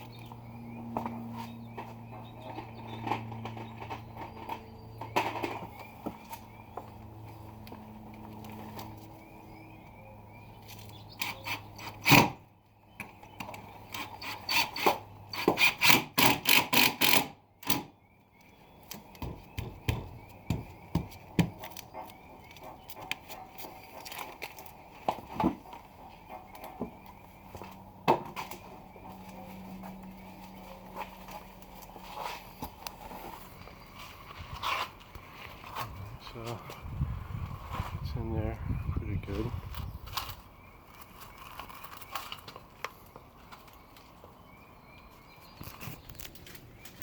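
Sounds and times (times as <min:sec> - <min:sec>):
knocks on wood: 0:19.2 - 0:21.6.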